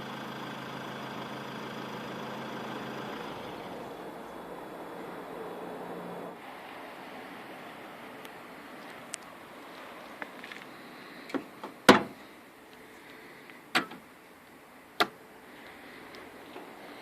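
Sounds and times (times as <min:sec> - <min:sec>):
steady low hiss: 0:00.0 - 0:17.0
car body clunks and clicks: 0:11.3 - 0:12.2, 0:13.7 - 0:14.1, 0:15.0 - 0:15.2.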